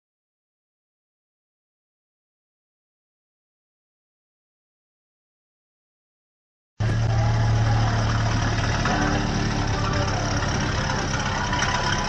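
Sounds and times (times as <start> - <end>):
car engine idling: 6.8 - 12.0.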